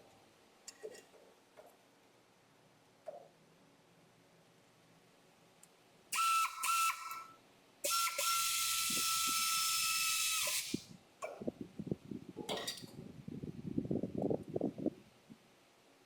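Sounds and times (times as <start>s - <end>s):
compressed air hissing: 7.9s - 10.9s.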